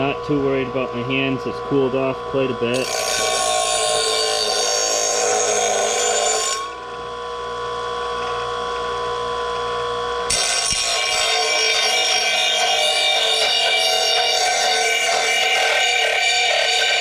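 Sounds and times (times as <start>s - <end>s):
electric grinder motor whine: 1.7s - 17.0s
grinding wheel rasping on metal: 2.8s - 6.9s, 10.3s - 17.0s.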